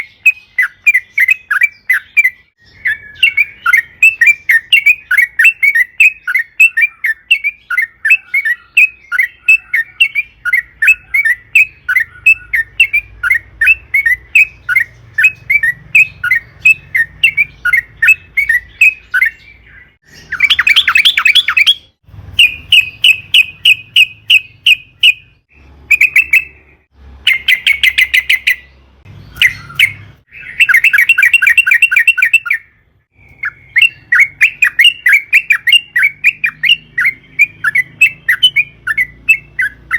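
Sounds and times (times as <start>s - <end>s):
bird chattering trills: 0.0s - 28.7s.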